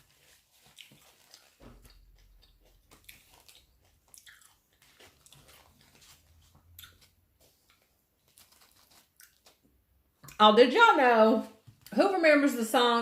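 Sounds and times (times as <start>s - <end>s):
faint chewing mouth clicks: 0.6s - 6.0s, 6.7s - 9.6s.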